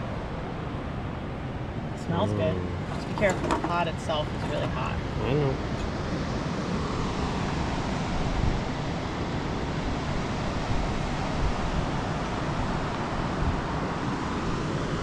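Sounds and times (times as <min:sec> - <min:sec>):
ocean surf: 0:05.8 - 0:15.0.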